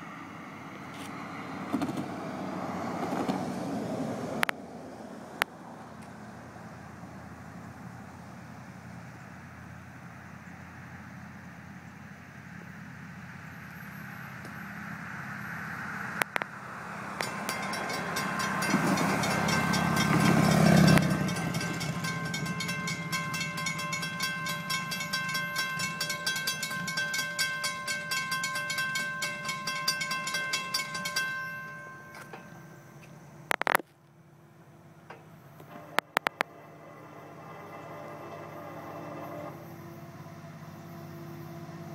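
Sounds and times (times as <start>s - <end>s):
locomotive engine drone: 0.0s - 41.9s
steady high ringing: 16.9s - 33.7s, 35.3s - 40.0s
train wheels clicking over rails: 17.1s - 33.8s.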